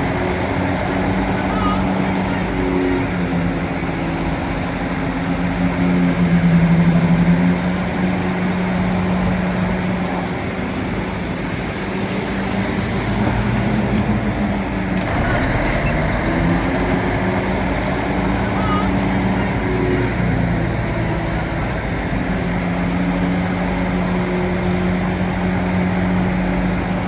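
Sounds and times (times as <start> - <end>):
heavy machine engine running: 13.2 - 27.0
loud rumbling noise: 14.1 - 21.6.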